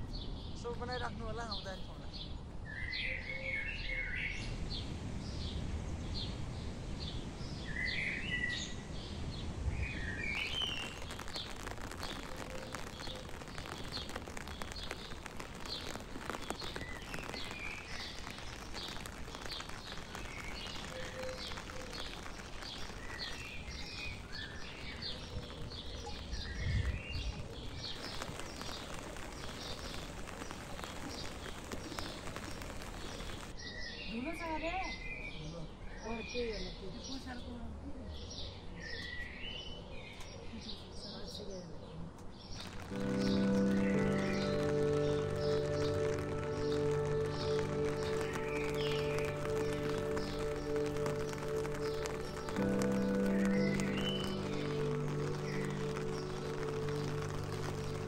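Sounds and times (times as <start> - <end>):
outdoor hiss: 4.2 - 34.9, 42.4 - 58.0
bird chirping: 7.0 - 36.8, 42.5 - 58.0.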